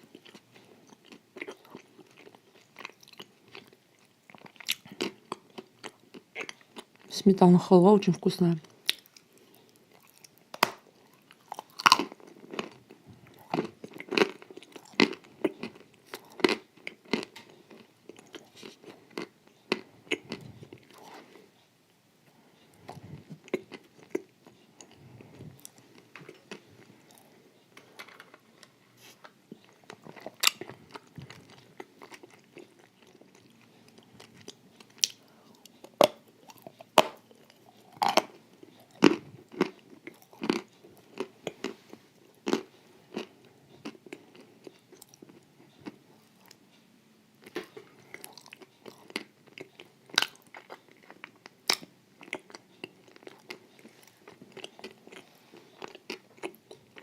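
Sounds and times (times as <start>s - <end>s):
person crunching dessert: 0.0s - 7.1s, 8.8s - 21.4s, 22.7s - 27.4s, 29.6s - 46.6s, 47.4s - 57.0s
wet chewing: 47.4s - 57.0s.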